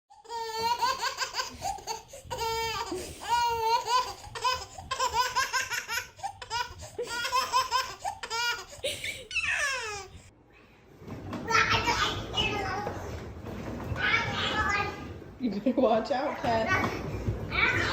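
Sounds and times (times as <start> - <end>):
baby giggling: 0.2 - 10.2
baby squealing: 2.3 - 10.2.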